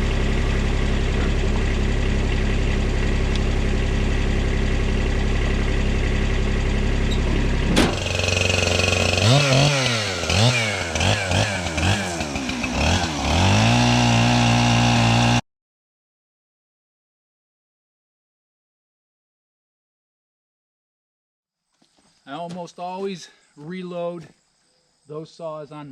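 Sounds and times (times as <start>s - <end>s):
engine running: 0.0s - 15.4s
chainsaw revving: 7.8s - 15.4s.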